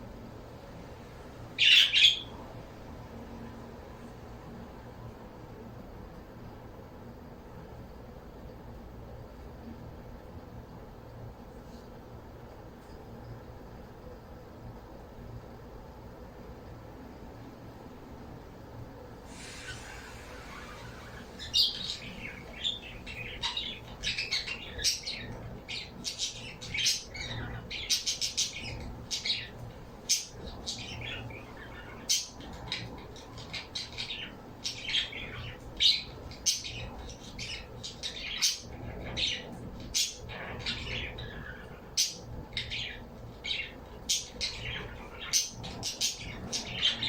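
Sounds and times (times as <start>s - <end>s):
birds chirping: 1.4s - 2.6s, 19.3s - 47.0s.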